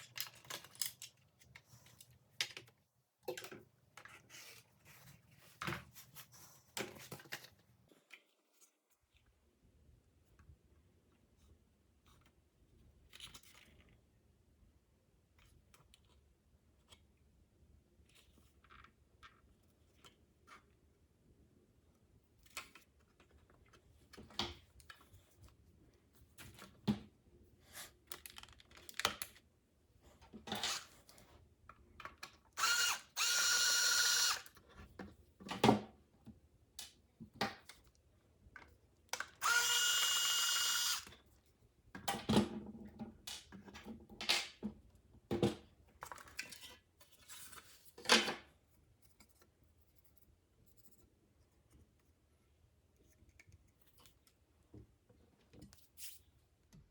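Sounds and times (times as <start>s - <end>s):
tools and parts clicking: 0.0s - 2.7s
small electric motor whirring: 32.6s - 34.5s, 39.4s - 41.1s.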